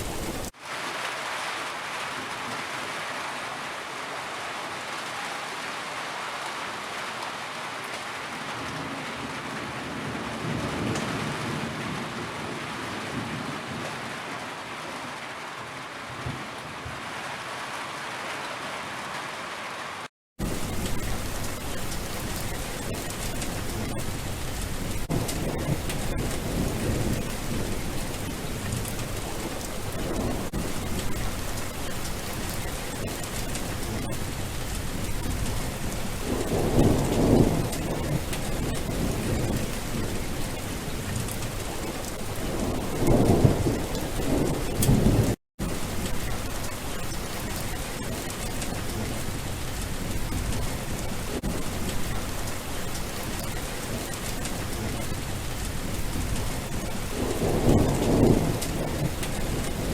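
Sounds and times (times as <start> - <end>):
heavy rain: 0.0 - 59.9
low thunder rolling: 20.4 - 59.9.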